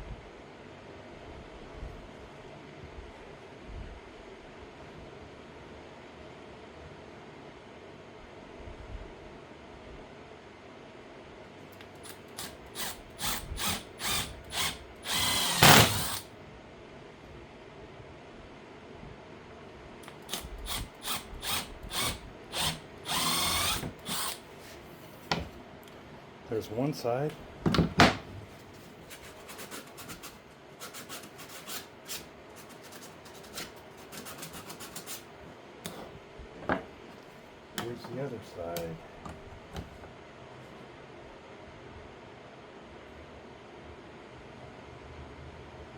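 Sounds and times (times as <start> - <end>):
power drill drilling into wood: 12.4 - 16.3, 20.7 - 24.4.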